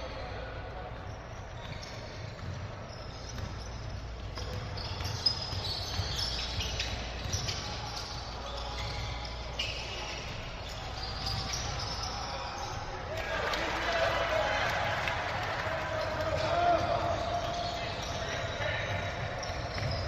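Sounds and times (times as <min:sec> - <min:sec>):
sneakers squeaking: 0:00.0 - 0:20.0
basketball bouncing on court: 0:01.6 - 0:12.9, 0:16.0 - 0:20.0.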